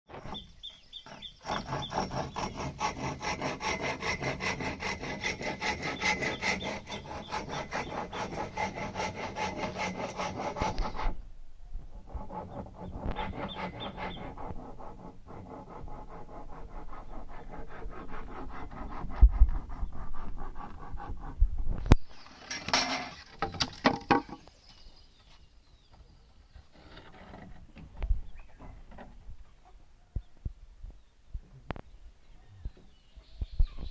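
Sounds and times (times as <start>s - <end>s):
rhythmic rasping scrape: 1.0s - 11.2s.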